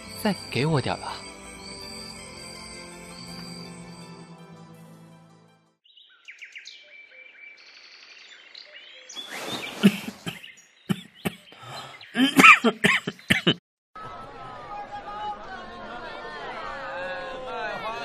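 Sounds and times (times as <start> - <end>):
birds chirping: 5.8 - 13.6.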